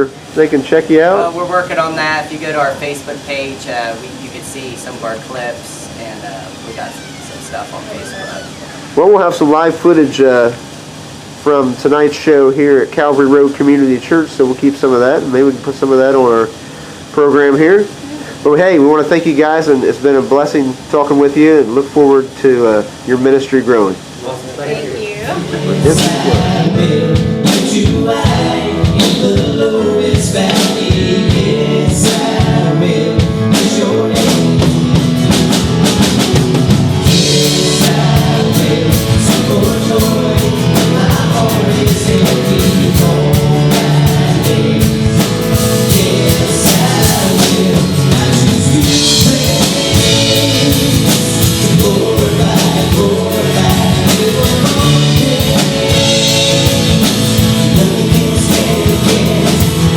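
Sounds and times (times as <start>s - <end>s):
gospel band playing: 0.0s - 59.9s
singing: 25.2s - 34.7s, 37.1s - 59.9s
drum kit beat: 25.2s - 59.9s.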